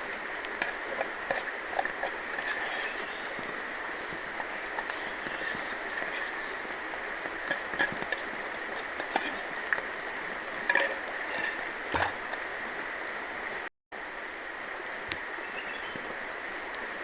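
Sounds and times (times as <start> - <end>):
river water rushing: 0.0 - 13.6
rain: 0.0 - 17.0.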